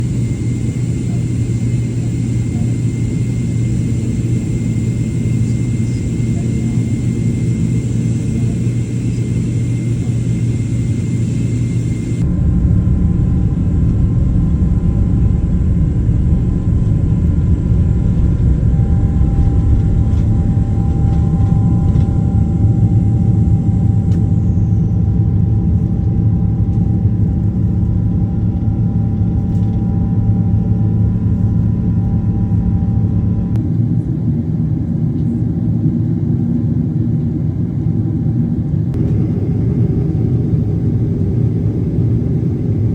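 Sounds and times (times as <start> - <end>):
high steady whine: 0.0 - 33.7
jet engines rumbling on takeoff: 0.0 - 42.9.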